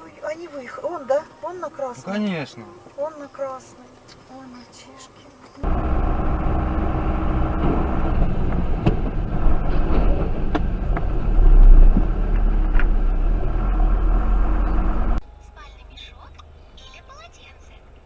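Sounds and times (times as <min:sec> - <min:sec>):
car engine and road rumble: 0:02.9 - 0:18.0
low engine surge: 0:05.6 - 0:15.2.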